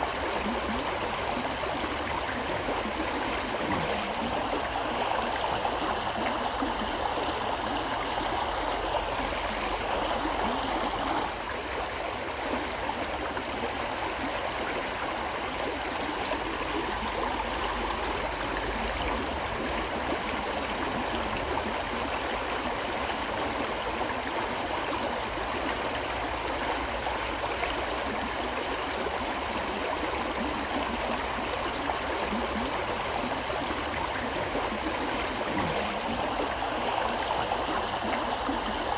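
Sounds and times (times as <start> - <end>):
river flowing: 0.0 - 38.9.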